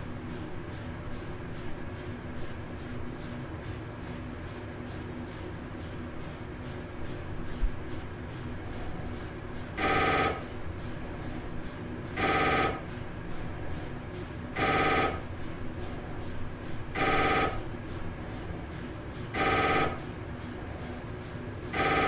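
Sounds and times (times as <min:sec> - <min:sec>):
telephone ringing: 0:09.8 - 0:10.5, 0:12.2 - 0:12.8, 0:14.6 - 0:15.2, 0:17.0 - 0:17.6, 0:19.4 - 0:20.0, 0:21.8 - 0:22.0.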